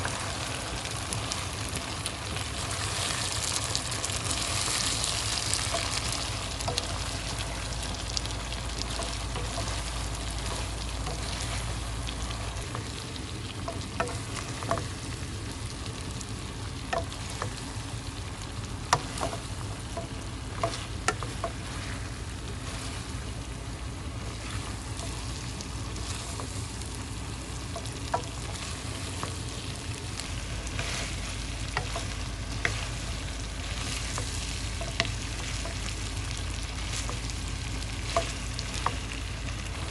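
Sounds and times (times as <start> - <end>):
food sizzling in a pan: 0.0 - 39.9
utensil clicking against pan: 13.7 - 14.9, 18.9 - 21.6, 27.7 - 29.6, 33.8 - 36.0.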